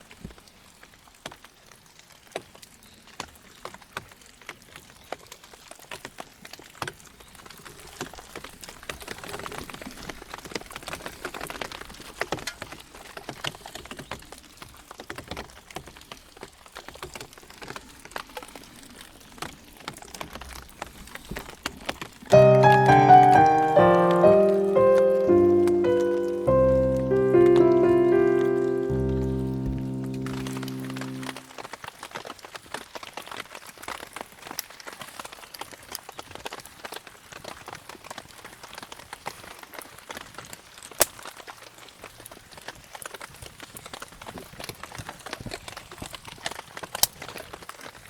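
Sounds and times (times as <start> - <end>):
rain falling: 22.3 - 31.5.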